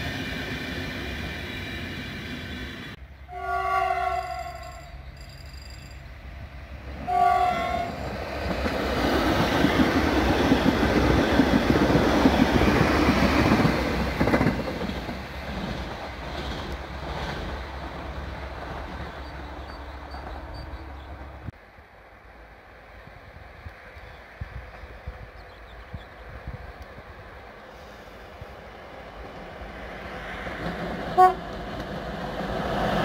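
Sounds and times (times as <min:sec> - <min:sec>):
train horn blast: 0:03.3 - 0:04.9, 0:07.0 - 0:08.0, 0:31.2 - 0:31.5
train wheels rumbling on rails: 0:04.2 - 0:21.9, 0:22.7 - 0:33.0.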